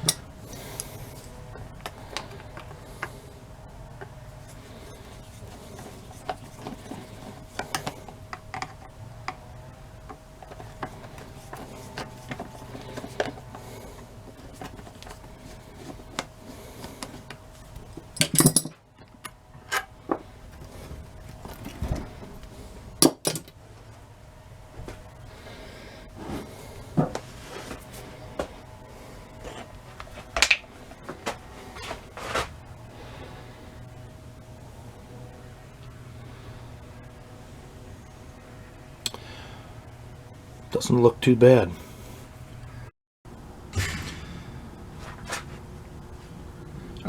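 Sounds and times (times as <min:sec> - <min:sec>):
faint steady hum: 0:00.0 - 0:47.0
metal parts clattering: 0:18.2 - 0:18.8
metal tools clicking and clinking: 0:18.2 - 0:19.9, 0:23.0 - 0:23.5.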